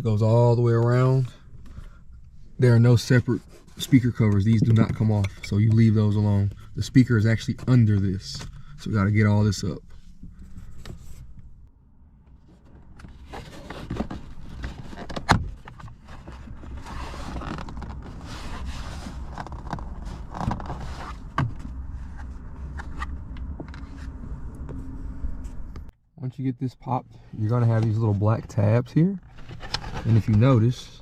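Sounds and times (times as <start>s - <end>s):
low steady hum: 0.0s - 31.0s
plastic rubbing and scraping: 12.5s - 25.9s, 27.7s - 30.8s.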